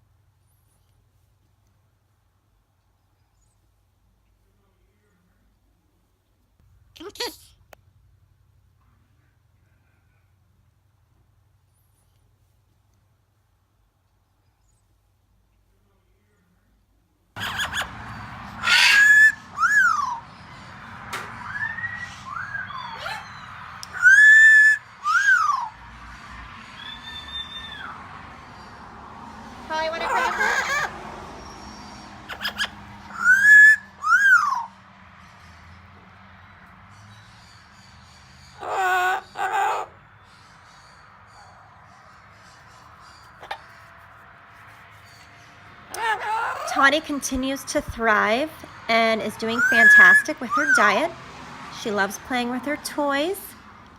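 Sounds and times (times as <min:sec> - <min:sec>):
parrot whistles: 0:17.4 - 0:20.4, 0:21.4 - 0:25.8, 0:26.8 - 0:28.0, 0:30.2 - 0:34.8, 0:49.6 - 0:50.8
parrot squawk: 0:17.4 - 0:28.7, 0:29.7 - 0:34.8, 0:38.4 - 0:44.0, 0:45.9 - 0:47.0, 0:49.5 - 0:51.1.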